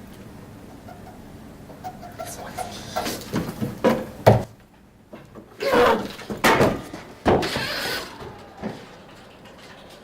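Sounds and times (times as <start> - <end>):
rough noisy sound: 0.0 - 4.5.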